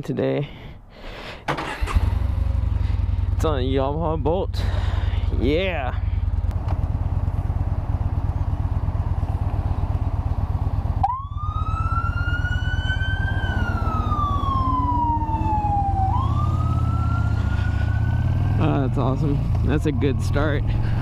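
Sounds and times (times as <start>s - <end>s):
motorcycle exhaust rumble: 2.0s - 21.0s
siren wailing: 11.0s - 18.9s, 19.7s - 20.5s.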